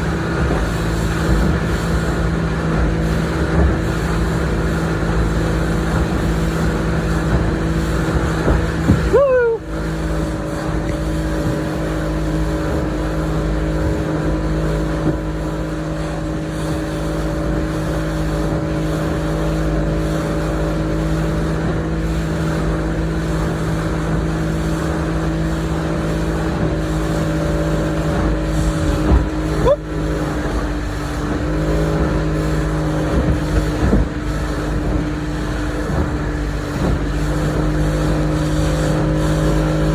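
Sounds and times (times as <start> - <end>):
boat engine drone: 0.0 - 39.9
water rushing: 0.0 - 39.9
wind: 0.0 - 39.9.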